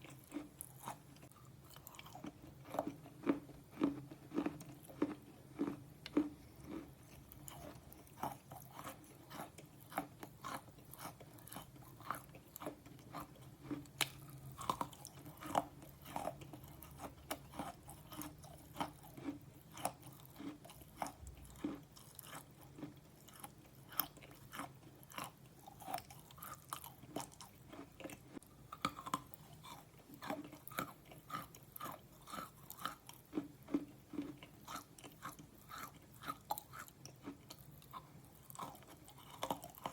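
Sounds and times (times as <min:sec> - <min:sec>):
pencil being chewed and crunched: 0:00.0 - 0:39.9.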